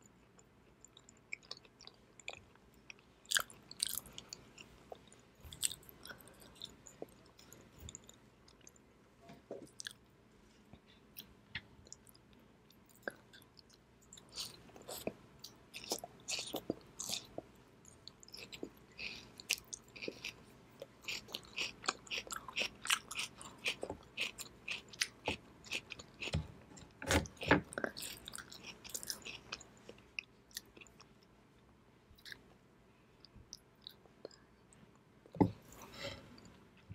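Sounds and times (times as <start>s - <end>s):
chewing raw radish: 13.0s - 26.4s, 27.1s - 31.1s.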